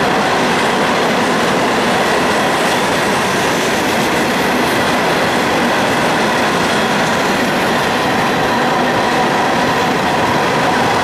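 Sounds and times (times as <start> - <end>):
train wheels rolling on rails: 0.0 - 11.0.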